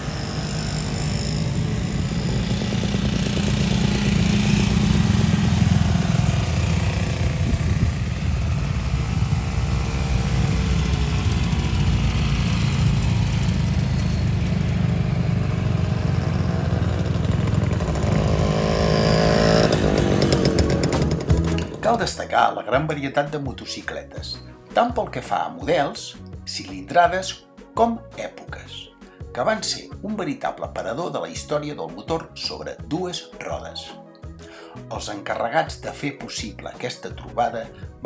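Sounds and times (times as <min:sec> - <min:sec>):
motorcycle engines revving: 0:00.0 - 0:22.2.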